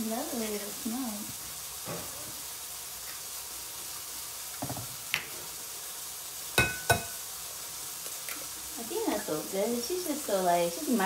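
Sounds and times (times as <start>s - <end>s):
food frying sizzle: 0.0s - 11.0s
metal fork tapping egg: 6.6s - 7.1s.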